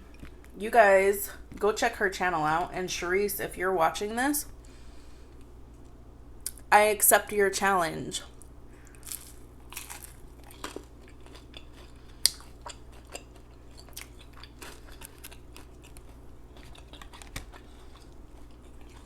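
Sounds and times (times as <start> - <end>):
person chewing with mouth open: 8.8 - 19.0.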